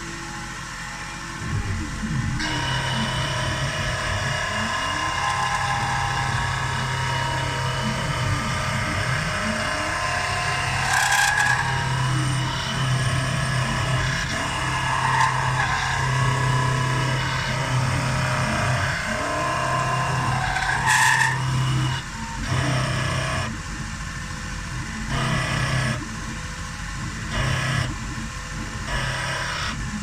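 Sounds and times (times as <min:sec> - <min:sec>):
milling machine motor hum: 0:00.0 - 0:30.0
squealing cutting tones: 0:02.4 - 0:22.9.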